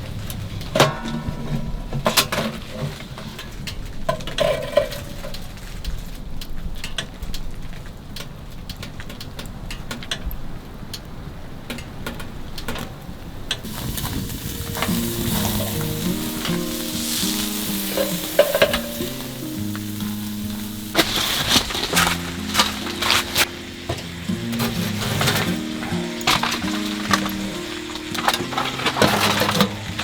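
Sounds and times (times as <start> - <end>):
sharp crackles: 1.4 - 30.0
meat sizzling over a fire: 13.6 - 30.0
background music: 13.7 - 30.0.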